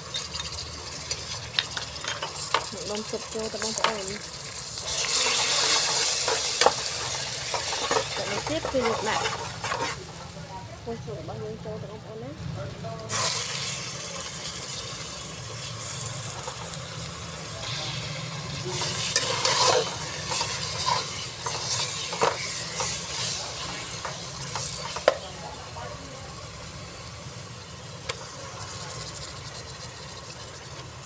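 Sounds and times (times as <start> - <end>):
meat sizzling in a pan: 0.0 - 10.7, 13.0 - 31.0
sauce bubbling: 0.2 - 10.3, 13.1 - 25.0
spatula scraping and knocking pan: 5.2 - 10.2, 18.8 - 25.3.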